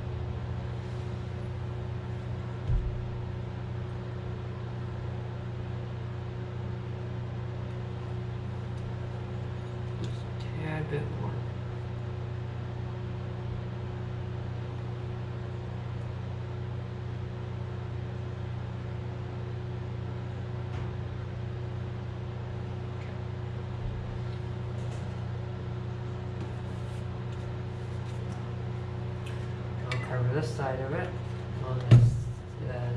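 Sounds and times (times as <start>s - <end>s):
low machine hum: 0.0s - 32.9s.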